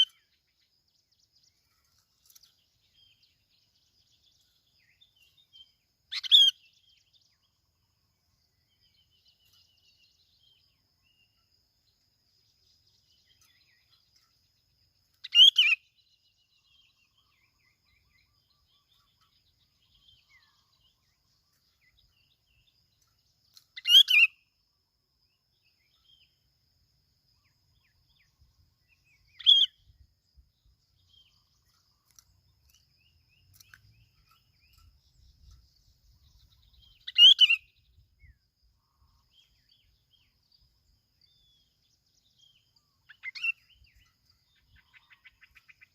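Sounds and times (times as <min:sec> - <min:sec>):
bulbul calling: 0:00.0 - 0:00.4, 0:04.5 - 0:07.6, 0:15.2 - 0:16.0, 0:16.6 - 0:24.5, 0:27.7 - 0:30.0, 0:30.9 - 0:40.3, 0:42.4 - 0:45.9.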